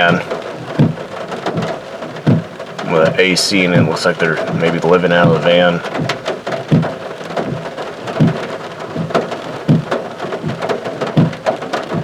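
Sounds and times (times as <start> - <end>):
dull regular thump: 0.0 - 12.0
rain pattering on a car: 0.0 - 12.0.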